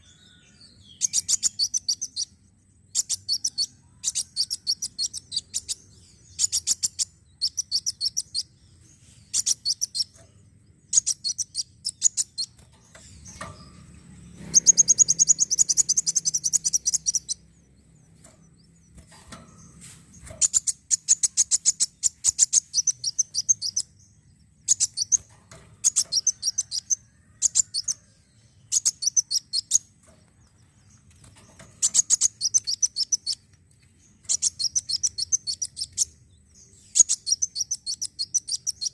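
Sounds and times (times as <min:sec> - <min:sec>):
sunbird trilling: 0:00.0 - 0:08.6, 0:09.2 - 0:17.7, 0:24.6 - 0:29.9, 0:31.6 - 0:33.5, 0:34.1 - 0:38.9.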